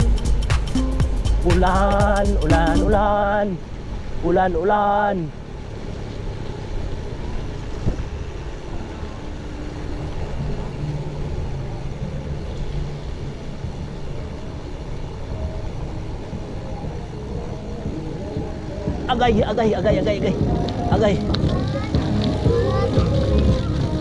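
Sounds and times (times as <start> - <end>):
tyres on wet trail: 0.0 - 24.0
wind on camera microphone: 7.7 - 8.3.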